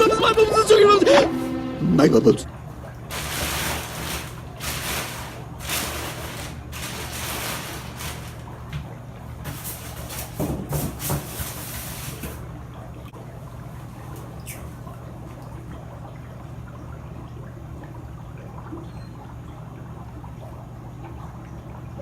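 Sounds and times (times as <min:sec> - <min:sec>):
dry ice fizzing in water: 0:03.1 - 0:08.6.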